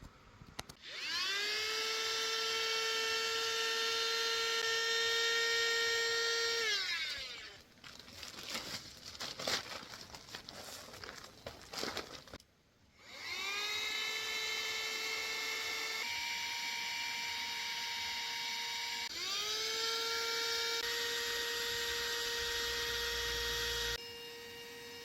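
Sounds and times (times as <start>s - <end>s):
electric air pump whining: 0.8s - 7.7s, 13.0s - 25.0s.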